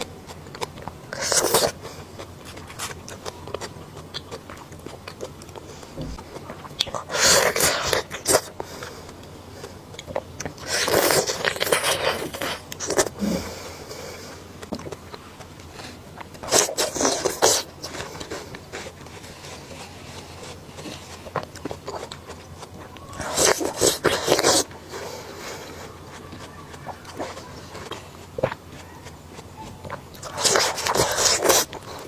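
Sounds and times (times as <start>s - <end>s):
crisp biting and crunching: 0.0s - 8.6s, 9.9s - 13.5s, 14.6s - 24.8s, 26.2s - 32.0s
chewing and mouth clicks: 0.0s - 32.0s.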